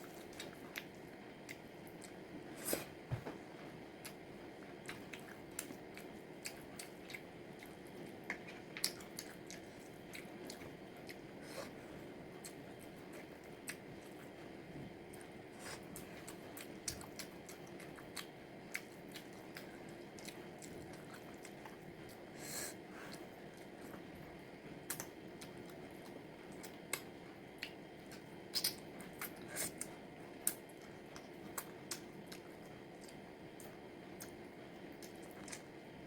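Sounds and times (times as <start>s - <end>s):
steady low hum: 0.0s - 36.0s
chewing crunches and clicks: 4.8s - 11.2s, 24.9s - 34.4s, 35.0s - 35.7s.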